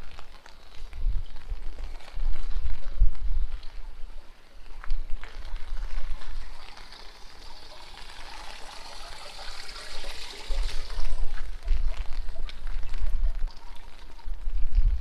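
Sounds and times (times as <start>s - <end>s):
running water: 5.2s - 15.0s
wind buffeting microphone: 10.5s - 15.0s.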